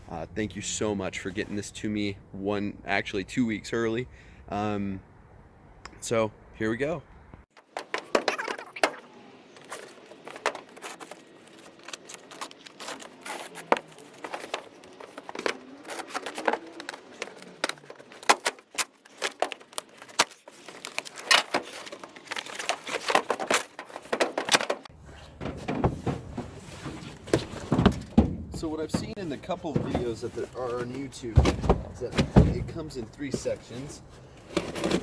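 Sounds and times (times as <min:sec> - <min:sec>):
packaging crinkling and tearing: 0:09.5 - 0:24.6.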